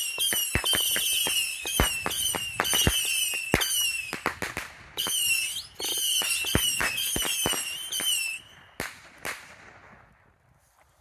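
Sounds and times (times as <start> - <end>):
firework whistles: 0.0 - 4.3, 5.0 - 9.0
firework cracks: 0.0 - 10.2.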